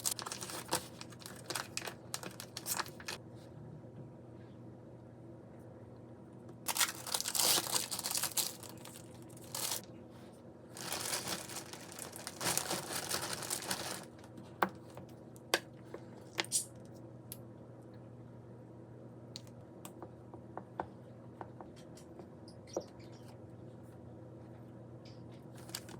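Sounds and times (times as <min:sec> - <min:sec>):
plastic packaging crinkling: 0:00.0 - 0:03.2, 0:06.7 - 0:09.8, 0:10.8 - 0:14.4, 0:25.6 - 0:25.9.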